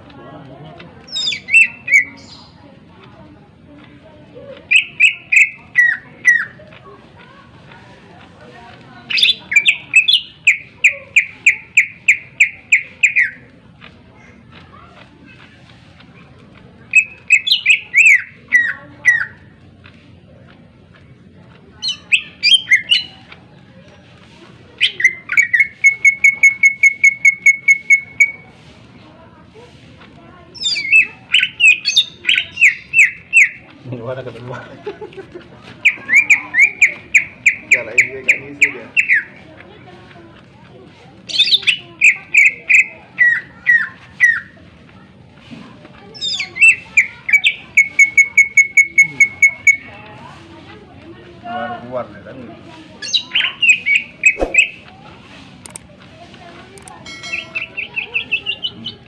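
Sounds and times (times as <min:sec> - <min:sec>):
bird singing whistled notes: 0:01.1 - 0:02.5, 0:04.7 - 0:06.5, 0:09.1 - 0:13.4, 0:16.9 - 0:19.3, 0:24.8 - 0:28.4, 0:30.6 - 0:33.6, 0:35.8 - 0:39.3, 0:46.2 - 0:49.9, 0:53.0 - 0:54.8, 0:57.1 - 0:59.0.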